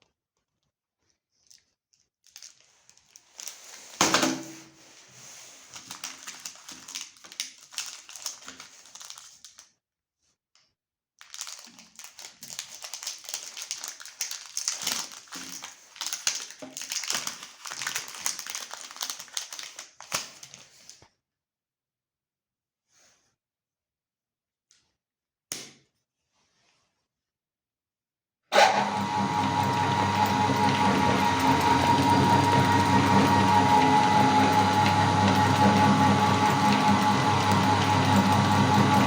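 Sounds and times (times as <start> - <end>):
wrappers crinkling: 1.4 - 4.0, 5.0 - 9.7, 11.2 - 20.8.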